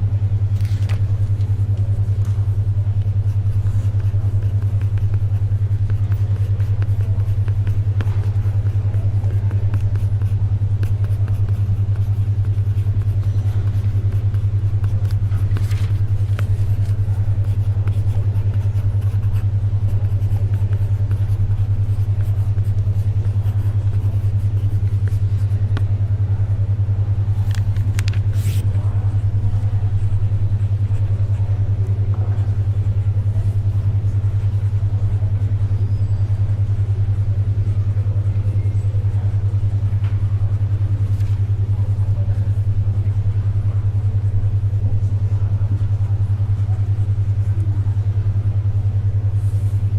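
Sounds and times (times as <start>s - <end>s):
faint library ambience: 0.0s - 49.9s
soft paper rustles: 0.4s - 26.0s, 27.2s - 28.7s, 41.0s - 41.8s.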